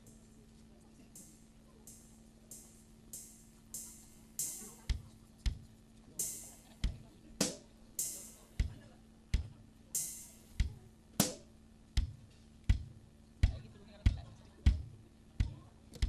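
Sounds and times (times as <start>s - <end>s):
cymbal strokes: 1.1s - 5.6s, 6.2s - 8.6s, 9.9s - 11.5s
kick drum hits: 4.9s - 5.8s, 6.8s - 7.6s, 8.6s - 8.8s, 9.4s - 9.6s, 10.6s - 16.0s.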